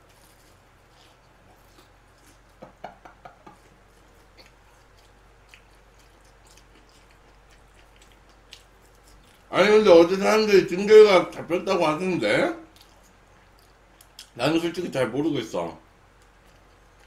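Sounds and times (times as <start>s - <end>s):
man chewing food: 0.0s - 9.5s, 12.6s - 14.4s, 15.9s - 17.0s
low electrical hum: 0.0s - 17.0s.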